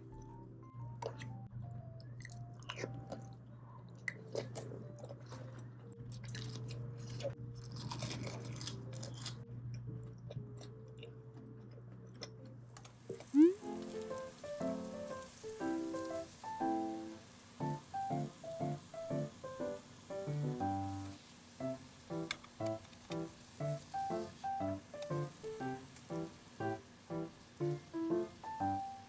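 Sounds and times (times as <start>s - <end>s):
soft background music: 0.0s - 29.0s
chewing food with crunches: 2.1s - 15.2s.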